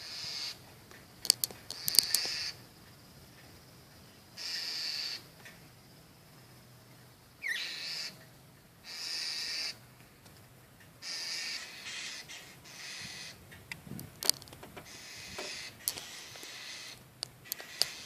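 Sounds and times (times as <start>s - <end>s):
bird harsh buzzy calls: 0.0s - 0.6s, 1.6s - 2.7s, 4.3s - 5.3s, 7.4s - 8.2s, 8.8s - 9.9s, 11.0s - 13.4s, 14.8s - 18.0s.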